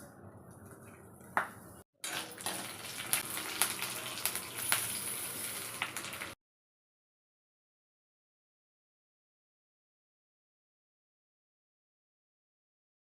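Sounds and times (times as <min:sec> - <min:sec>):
food crackling while stirred: 0:02.0 - 0:06.4.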